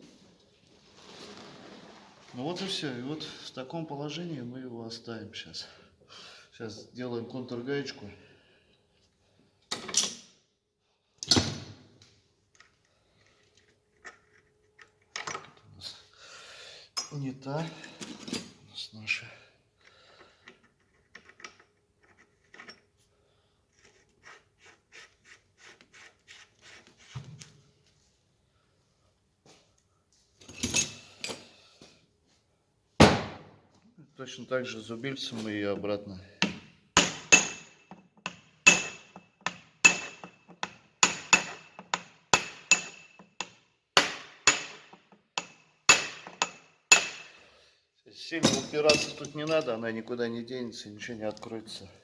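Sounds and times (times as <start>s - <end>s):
hammer striking metal chisel: 36.4s - 47.4s.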